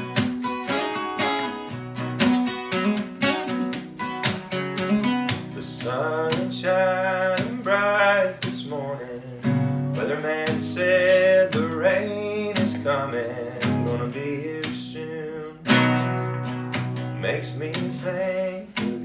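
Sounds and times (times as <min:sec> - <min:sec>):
acoustic guitar strumming: 0:00.0 - 0:19.0
person singing: 0:05.5 - 0:15.8, 0:17.2 - 0:19.0.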